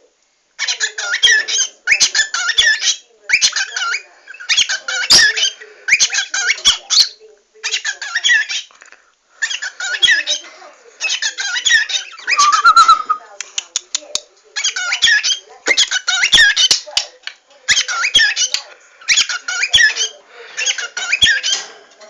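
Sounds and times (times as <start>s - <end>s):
small bird chirping: 11.1s - 13.2s.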